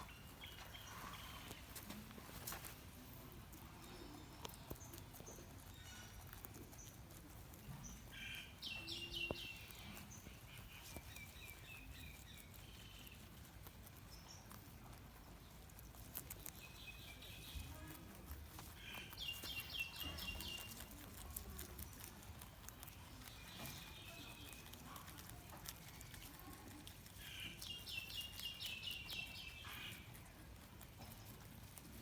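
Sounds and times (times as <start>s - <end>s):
rabbits chewing food: 0.0s - 32.0s.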